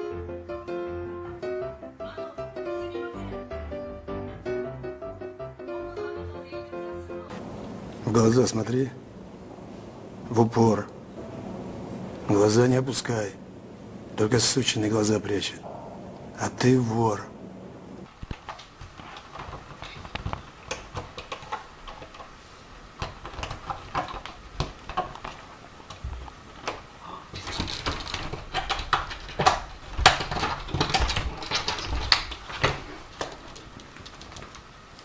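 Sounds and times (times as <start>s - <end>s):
cat scrambling: 17.4s - 34.8s.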